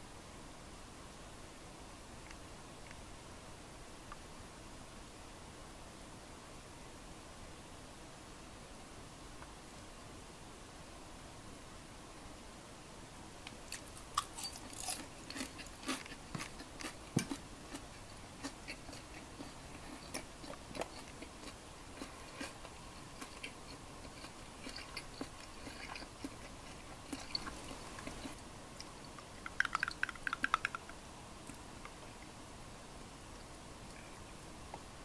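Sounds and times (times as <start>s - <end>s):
person chewing crunchy food: 13.7s - 30.9s.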